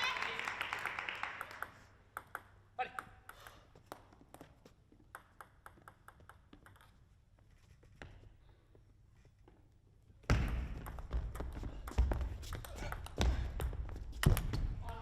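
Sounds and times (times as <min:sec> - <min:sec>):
crowd cheering: 0:00.0 - 0:01.8
table tennis ball clicking: 0:01.6 - 0:07.0.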